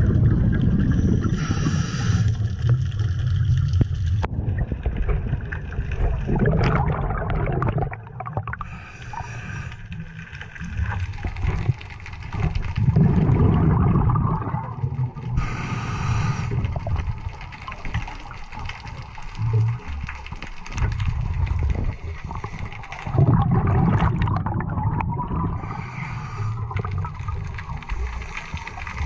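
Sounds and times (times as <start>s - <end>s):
gurgling exhaled bubbles: 0.0s - 29.0s
regulator hissing inhalation: 1.2s - 2.4s, 8.6s - 9.8s, 15.4s - 16.6s, 25.6s - 26.8s.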